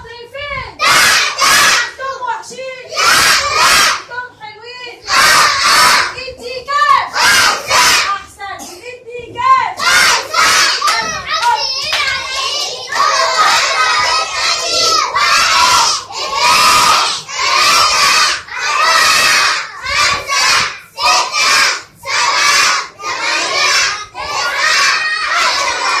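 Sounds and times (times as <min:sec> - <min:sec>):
children shouting in unison: 0:00.8 - 0:01.9, 0:02.9 - 0:04.0, 0:05.1 - 0:06.1, 0:07.1 - 0:08.1, 0:09.8 - 0:26.0.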